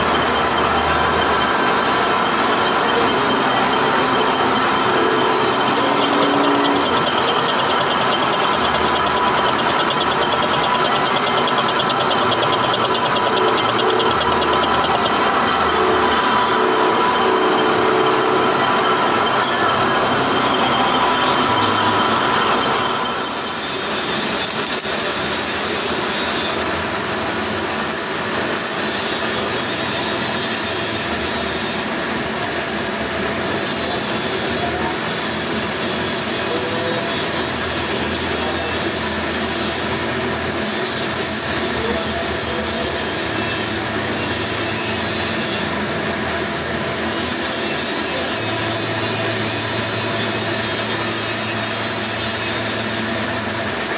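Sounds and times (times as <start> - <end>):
lathe machining with high whine: 0.0 - 53.9.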